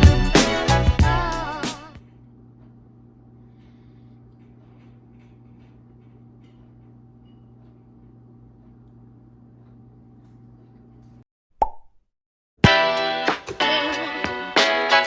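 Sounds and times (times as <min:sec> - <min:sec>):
music: 0:00.0 - 0:02.0, 0:12.6 - 0:15.0.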